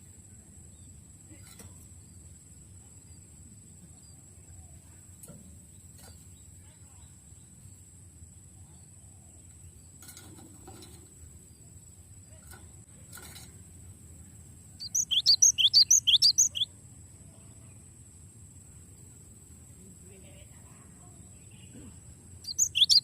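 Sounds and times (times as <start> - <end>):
bird singing rapid chirps: 14.6 - 16.7, 21.4 - 23.0.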